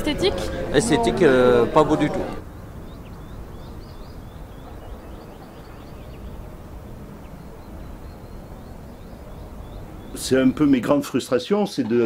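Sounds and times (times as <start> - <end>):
low outdoor rumble: 0.0 - 11.1
small birds chirping: 2.4 - 12.0.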